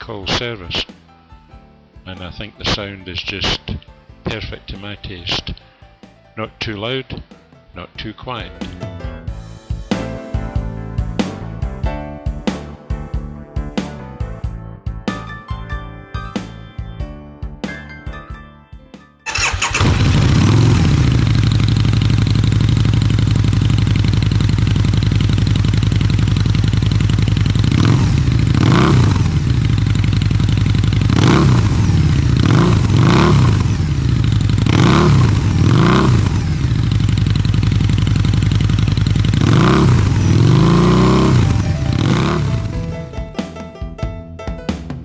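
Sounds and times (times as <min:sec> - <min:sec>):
motorcycle engine idling and revving: 0:19.3 - 0:43.2.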